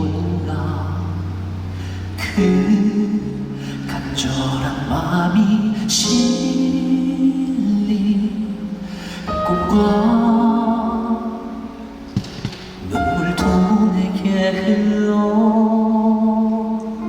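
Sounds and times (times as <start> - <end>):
male vocal quartet singing: 0.0 - 12.0, 12.8 - 17.0
instrumental accompaniment: 8.8 - 14.8.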